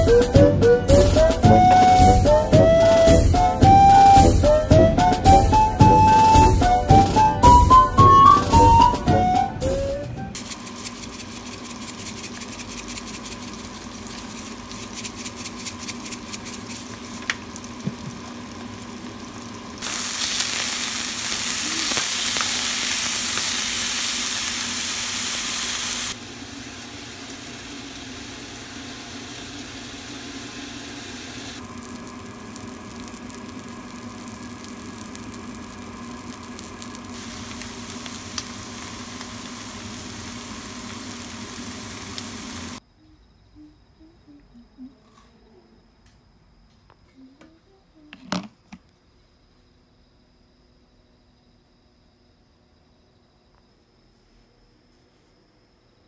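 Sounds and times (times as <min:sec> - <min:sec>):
food sizzling in a frying pan: 0:16.1 - 0:42.8
loud steady hiss: 0:19.8 - 0:42.8.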